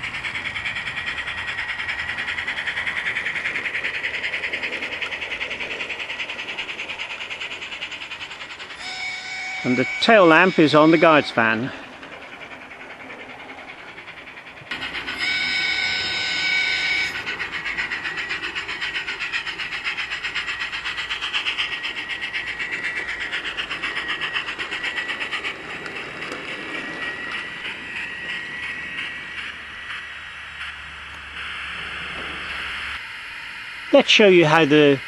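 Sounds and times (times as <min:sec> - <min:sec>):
steam locomotive exhaust chuffing: 0:00.0 - 0:35.0
steam whistle blowing: 0:08.8 - 0:11.8, 0:14.7 - 0:18.2.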